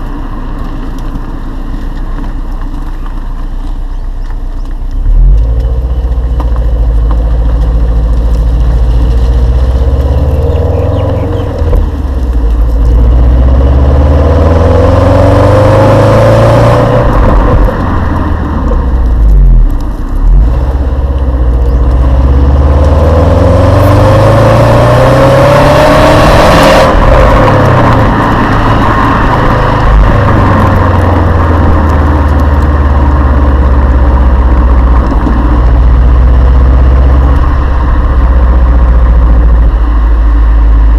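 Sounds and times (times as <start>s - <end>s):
car exhaust accelerating through gears: 0.0s - 40.9s.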